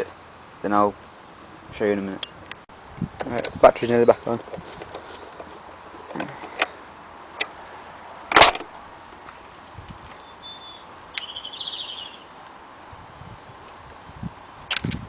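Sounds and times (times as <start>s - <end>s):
high pulsing chirp: 10.2s - 12.3s.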